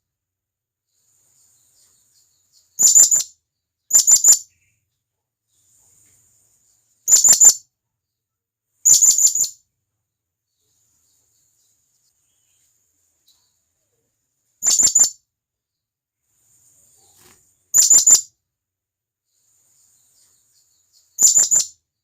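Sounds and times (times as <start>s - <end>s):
parrot high-pitched calls: 2.8s - 3.3s, 7.1s - 7.6s, 14.6s - 15.2s, 17.7s - 18.3s, 21.2s - 21.7s.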